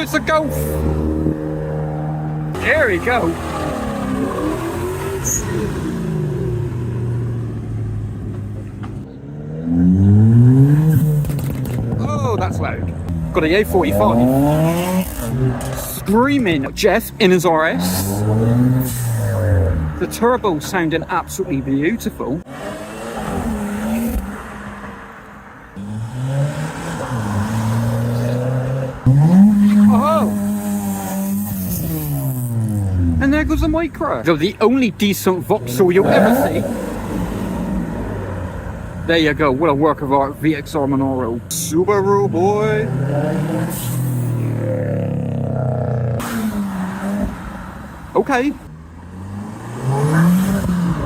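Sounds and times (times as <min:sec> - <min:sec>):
car revving hard: 0:00.0 - 0:25.2, 0:25.8 - 0:34.6, 0:35.2 - 0:40.1, 0:40.7 - 0:51.0
car engine accelerating: 0:00.0 - 0:51.0.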